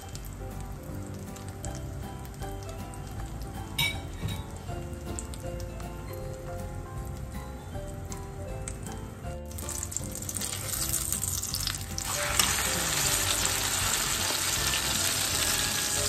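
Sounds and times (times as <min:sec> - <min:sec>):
omelette sizzling in hot oil: 0:09.4 - 0:16.0.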